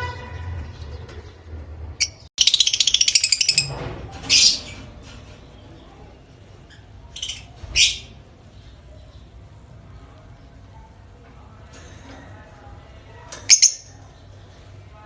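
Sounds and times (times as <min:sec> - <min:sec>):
lovebird chirping: 0:02.0 - 0:04.8, 0:13.4 - 0:14.0.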